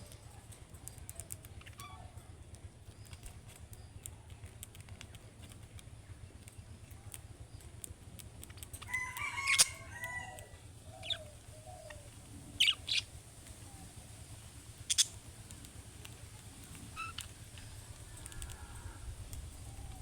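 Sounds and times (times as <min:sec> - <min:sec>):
budgerigars chirping: 0:09.4 - 0:09.8, 0:10.9 - 0:13.1, 0:14.8 - 0:15.2, 0:16.9 - 0:17.3.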